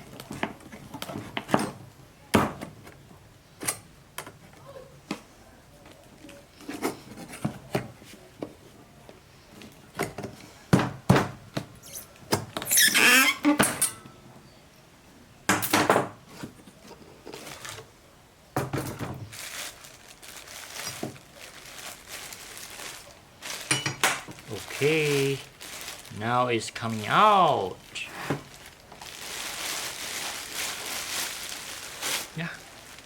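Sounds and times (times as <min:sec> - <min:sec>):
squeaky scrape: 0:11.8 - 0:13.6
packaging knocks and scrapes: 0:18.6 - 0:26.1, 0:28.1 - 0:33.0.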